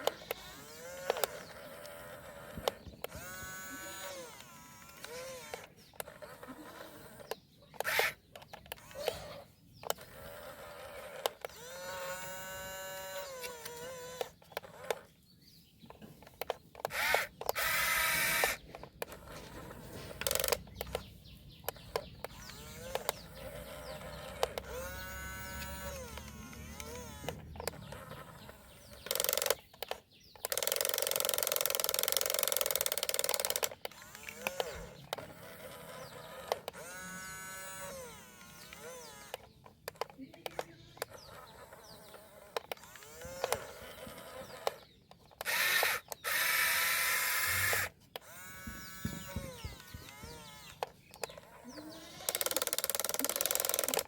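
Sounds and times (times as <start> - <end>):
small electric motors whining: 0.0 - 54.0
clicks: 15.8 - 37.0, 37.8 - 54.0.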